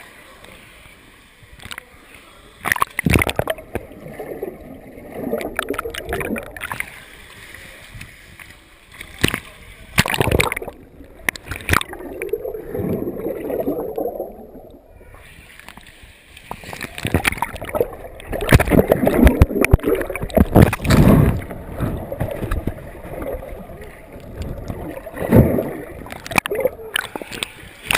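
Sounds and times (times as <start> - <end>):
water splashing and gurgling: 2.6 - 27.9
loud splashes: 9.2 - 10.8.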